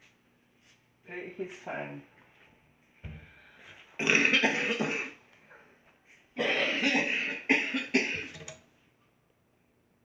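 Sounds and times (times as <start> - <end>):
person coughing: 4.0 - 5.2, 6.4 - 8.4.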